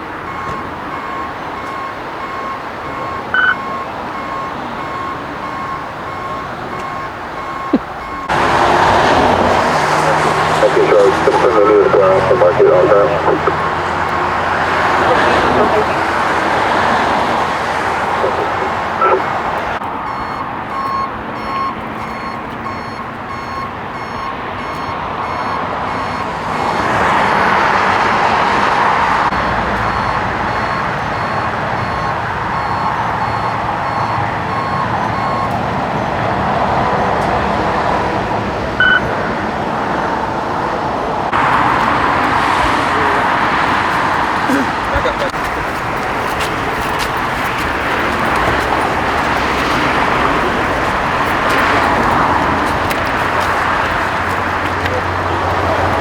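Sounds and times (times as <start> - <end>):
reversing alarm beeping: 0.0 - 27.8, 29.3 - 37.3, 38.8 - 39.1
vehicle engines and traffic: 0.0 - 56.0.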